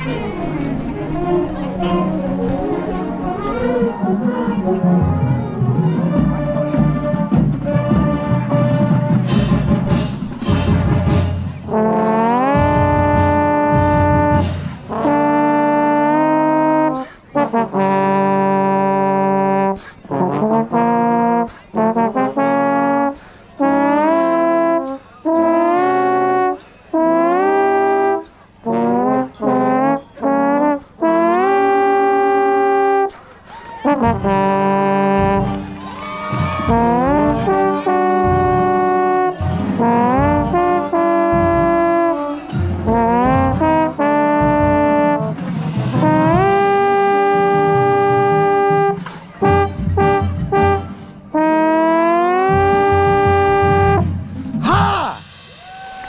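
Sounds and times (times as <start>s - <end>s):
brass section playing: 0.0s - 33.2s, 33.8s - 56.0s
sharp percussion hits: 4.3s - 11.8s, 54.1s - 56.0s.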